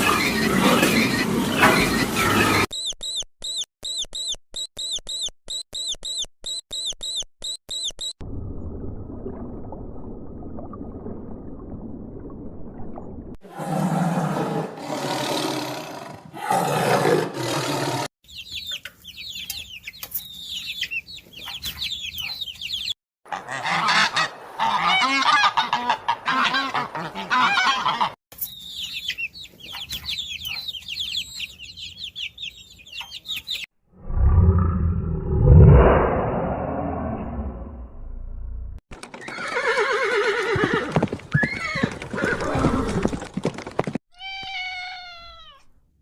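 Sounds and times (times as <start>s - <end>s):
waterfowl flock honking: 23.3s - 28.2s.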